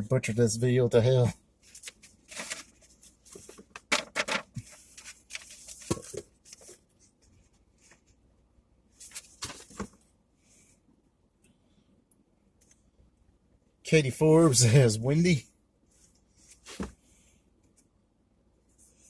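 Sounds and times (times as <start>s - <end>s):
packaging rustling and crinkling: 1.7s - 6.8s.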